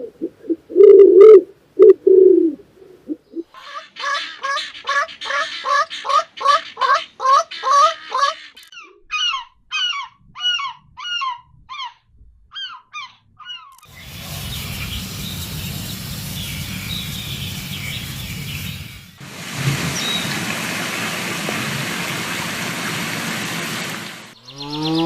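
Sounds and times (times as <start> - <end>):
geese honking: 3.6 - 8.6
steady rushing noise: 13.9 - 24.4.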